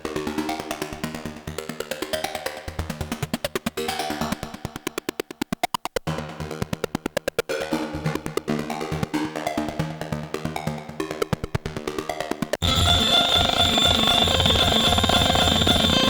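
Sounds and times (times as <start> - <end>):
synthesizer sequenced percussive notes: 11.1 - 16.0.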